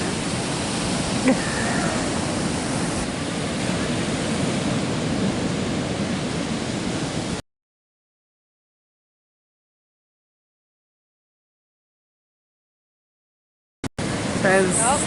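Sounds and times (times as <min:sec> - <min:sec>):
ocean surf on beach: 0:00.0 - 0:07.4, 0:14.0 - 0:15.0.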